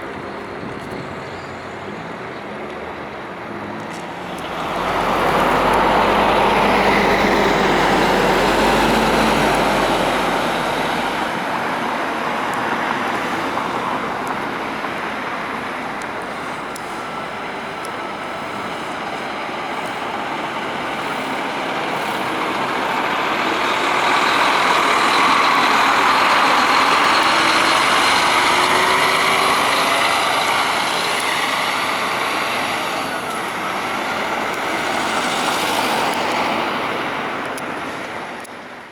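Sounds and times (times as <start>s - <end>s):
bus diesel engine rumbling: 0.0s - 38.9s.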